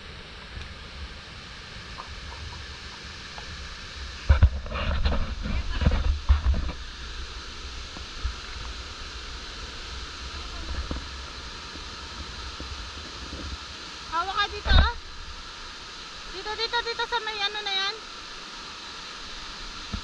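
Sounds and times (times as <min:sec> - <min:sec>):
mountain stream rushing: 0:01.2 - 0:20.0
rustling and knocks on microphone: 0:04.3 - 0:06.9.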